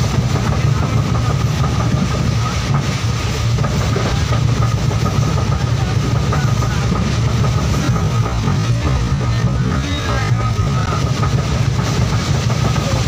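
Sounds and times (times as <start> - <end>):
thin steady whine: 0.0 - 13.0
train running rumble: 0.0 - 13.0.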